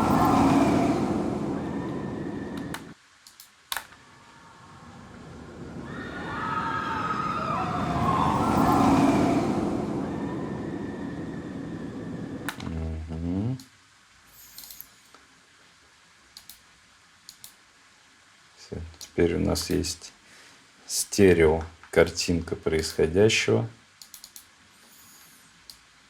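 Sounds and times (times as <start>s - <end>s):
high squealing tones: 0.0s - 3.0s, 4.0s - 12.8s
low falling tone: 0.0s - 3.0s, 4.0s - 13.6s
roller coaster passing: 0.0s - 3.0s, 4.0s - 12.8s
faint clicks: 2.6s - 4.4s, 16.3s - 17.6s, 24.0s - 25.9s.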